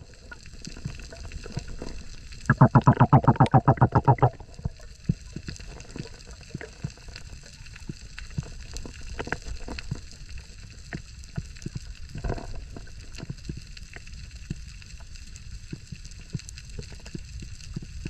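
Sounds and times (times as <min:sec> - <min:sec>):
underwater low rumble: 0:00.0 - 0:18.0
underwater clicks and knocks: 0:02.5 - 0:04.4.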